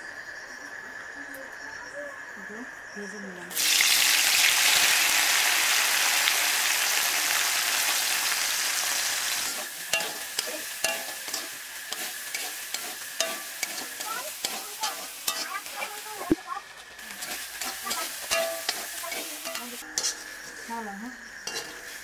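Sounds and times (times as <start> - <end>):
food sizzling in hot oil: 3.5 - 22.0
metal spatula scraping a wok: 9.4 - 16.2, 16.8 - 22.0.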